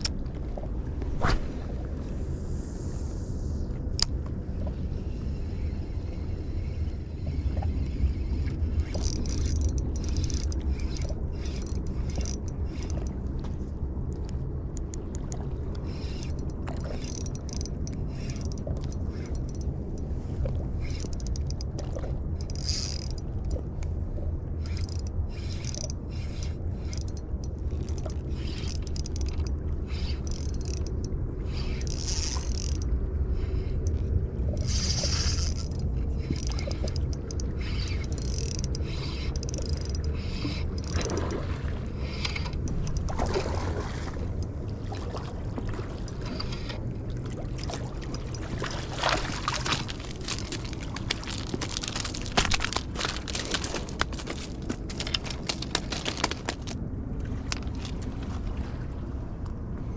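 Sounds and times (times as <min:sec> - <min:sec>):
fishing reel whirring and clicking: 0:05.4 - 0:13.2, 0:15.7 - 0:20.1, 0:20.7 - 0:23.8, 0:24.6 - 0:41.4, 0:42.0 - 0:43.1, 0:46.0 - 0:46.8, 0:47.5 - 0:56.8.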